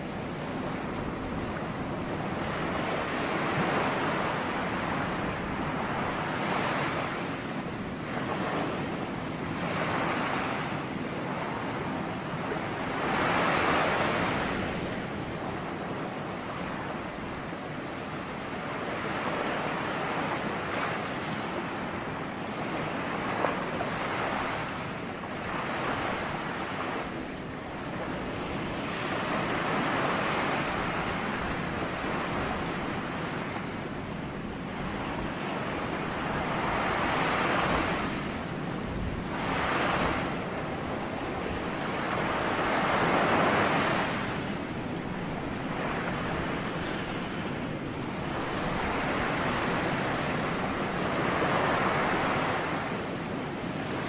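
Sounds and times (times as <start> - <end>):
waves breaking on shore: 0.0 - 54.0.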